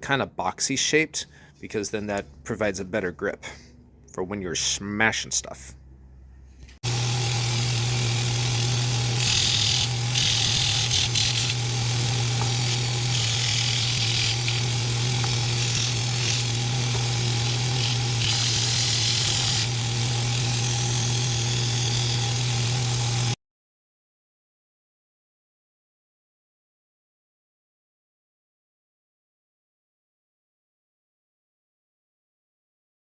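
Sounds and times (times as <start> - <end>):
power sander humming: 6.8 - 23.4
wood sanding hiss: 6.9 - 23.4.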